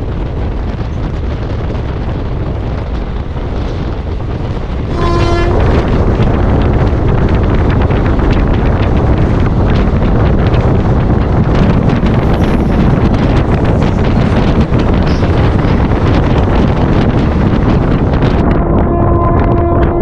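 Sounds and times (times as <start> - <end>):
moving train rumbling: 0.0 - 20.0
wind on microphone: 0.0 - 20.0
train horn blast: 4.9 - 6.0, 18.7 - 20.0.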